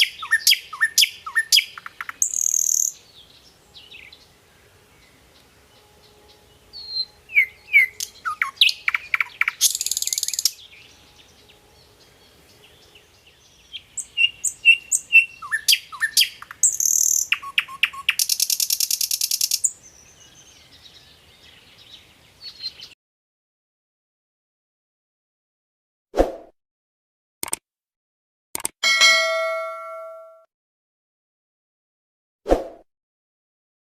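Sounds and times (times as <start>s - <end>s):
bird buzzy trills: 0.0s - 3.0s
songbird chirps and whistles: 0.0s - 3.0s, 5.8s - 11.4s, 12.8s - 21.2s.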